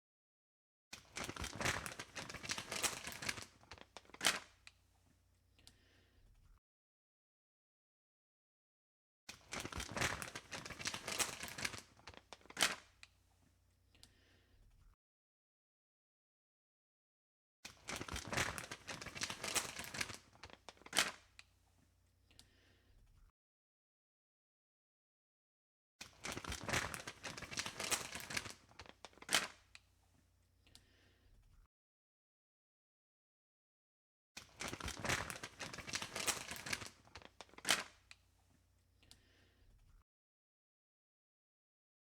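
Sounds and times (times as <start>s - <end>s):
crinkling and rustling: 1.0s - 4.7s, 9.3s - 13.0s, 17.7s - 21.4s, 26.0s - 29.8s, 34.4s - 38.2s.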